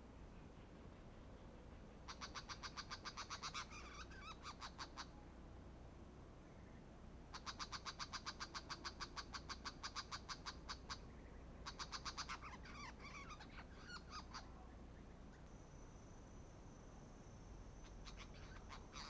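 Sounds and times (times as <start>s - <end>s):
shrike chattering: 17.8s - 19.0s.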